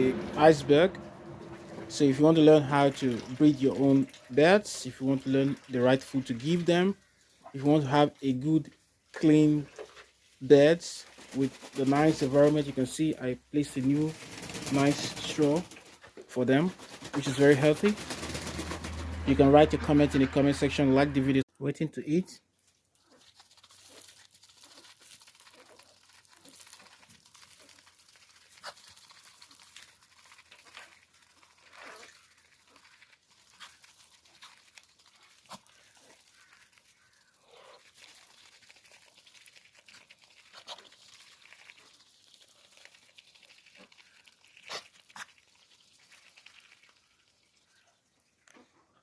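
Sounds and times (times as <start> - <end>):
rustles and clicks in straw: 9.2 - 12.9, 13.8 - 19.3, 22.6 - 47.0.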